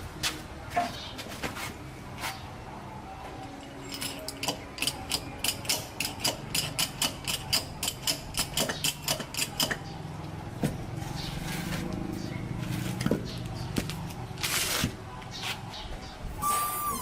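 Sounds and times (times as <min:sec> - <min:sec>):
ratchet wrench clicking: 0:03.9 - 0:09.8.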